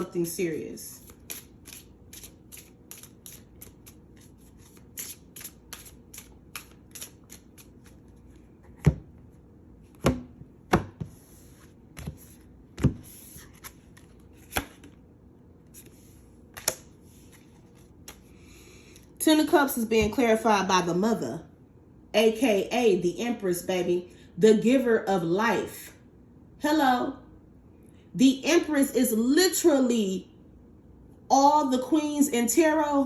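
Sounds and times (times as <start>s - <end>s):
cards shuffling: 1.0s - 8.8s, 11.0s - 15.0s, 15.7s - 18.3s.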